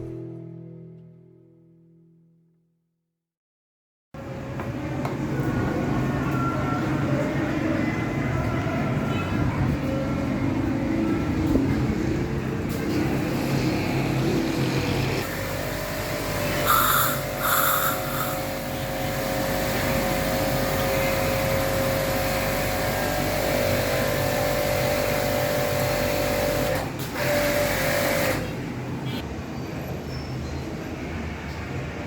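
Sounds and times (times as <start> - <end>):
pressure washer motor whine: 15.3 - 28.3
hiss of water spray: 16.6 - 18.6.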